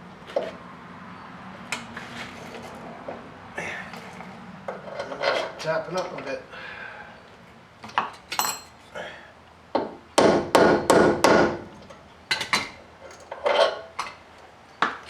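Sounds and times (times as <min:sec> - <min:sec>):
hammer tapping on metal: 0:09.8 - 0:11.6.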